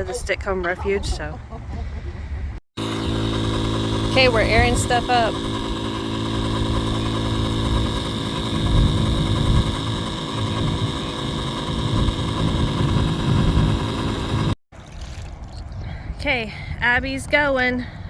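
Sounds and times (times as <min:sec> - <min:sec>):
electric air pump humming: 0:02.8 - 0:14.6.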